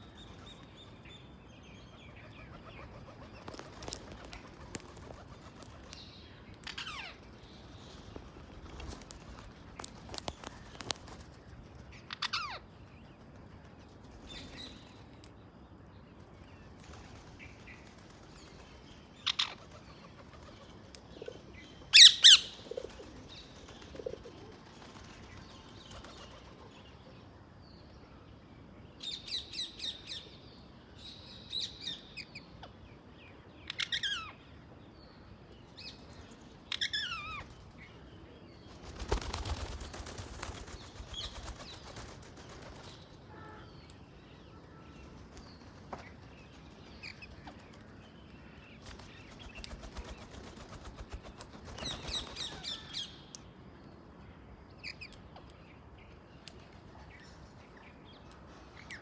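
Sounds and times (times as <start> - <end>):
birds chirping: 14.1 - 27.1.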